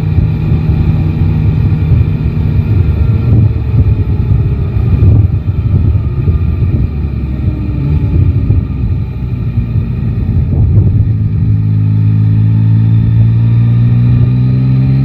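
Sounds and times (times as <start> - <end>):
motorcycle engine running: 0.0 - 15.0
wind rumble on microphone: 0.0 - 15.0.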